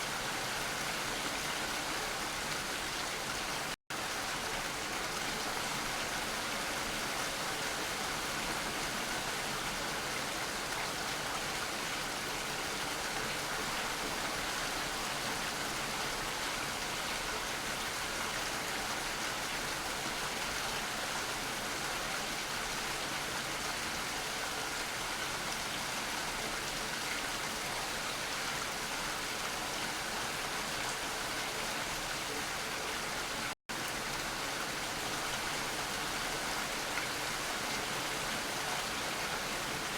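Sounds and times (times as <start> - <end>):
steady rain hiss: 26.4 - 39.9.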